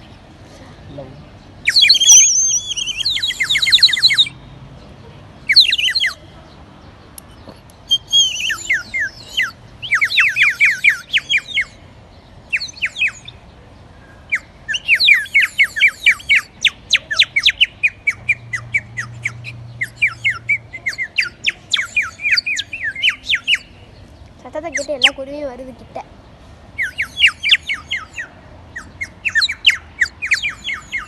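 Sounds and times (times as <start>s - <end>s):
clay bird whistle trilling: 1.6s - 4.4s, 7.8s - 11.8s, 14.7s - 18.0s, 19.0s - 23.7s, 26.8s - 31.0s.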